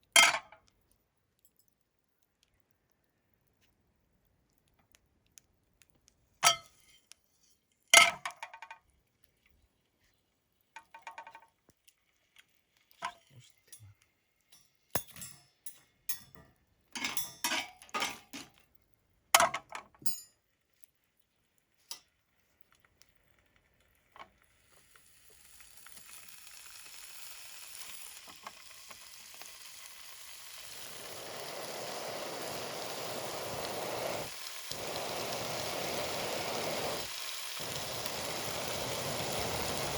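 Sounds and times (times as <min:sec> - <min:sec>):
food sizzling in a pan: 0:06.4 - 0:08.4, 0:21.6 - 0:39.9
metal utensils clinking: 0:14.6 - 0:16.4, 0:17.0 - 0:18.6.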